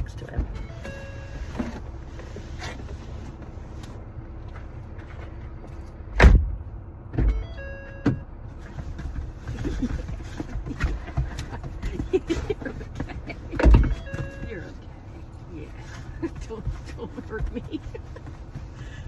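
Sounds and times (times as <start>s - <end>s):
car engine idling: 0.0s - 19.0s
car doors thumping shut: 6.2s - 8.3s, 9.0s - 14.7s
rustling and small knocks: 8.6s - 14.5s.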